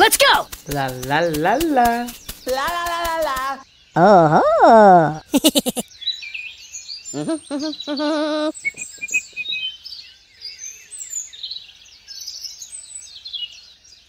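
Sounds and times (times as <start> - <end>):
small birds chirping: 0.0 - 14.0
loud wavering vocal call: 7.2 - 9.4.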